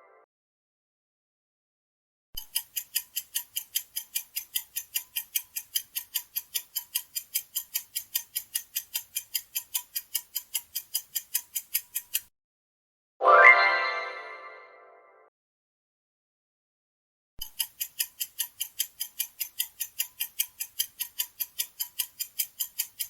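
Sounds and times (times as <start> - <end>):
clock ticking: 2.4 - 12.3, 17.4 - 23.0.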